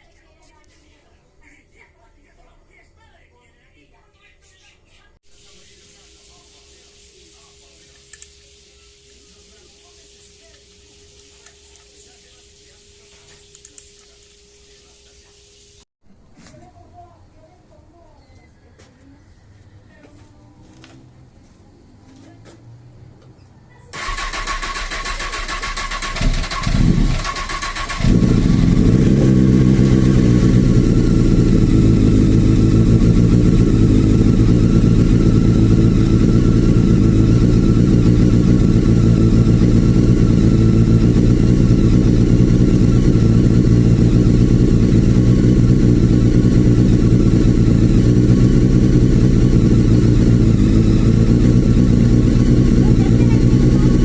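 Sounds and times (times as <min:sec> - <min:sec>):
starter motor cranking: 0:24.0 - 0:31.9
motorcycle engine idling: 0:24.0 - 0:54.0.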